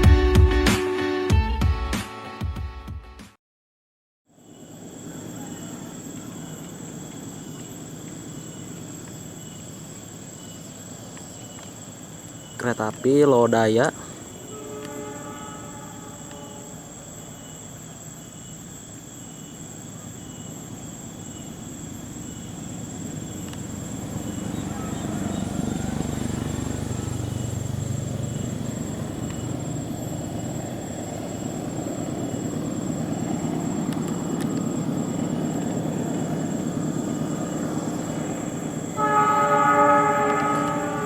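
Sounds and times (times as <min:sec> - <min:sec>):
diesel locomotive engine rumble: 0:04.9 - 0:41.0
train horn chord: 0:14.3 - 0:17.5, 0:38.9 - 0:41.0.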